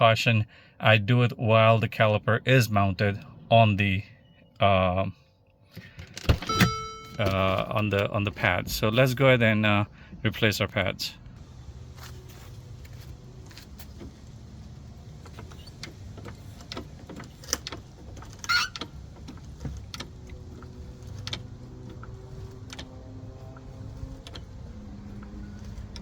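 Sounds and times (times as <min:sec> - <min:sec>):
low steady hum: 0:06.2 - 0:26.0.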